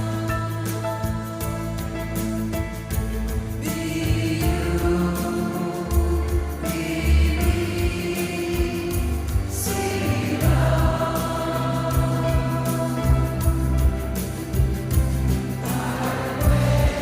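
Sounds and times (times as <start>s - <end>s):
deep sustained bass: 0.0s - 17.0s
choir singing held notes: 3.6s - 17.0s.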